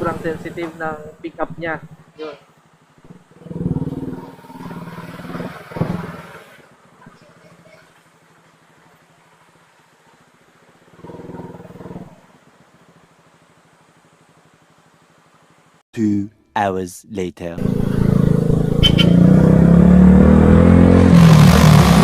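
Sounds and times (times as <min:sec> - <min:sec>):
motorcycle engine revving: 0:00.0 - 0:07.0, 0:10.9 - 0:13.0, 0:17.6 - 0:22.0.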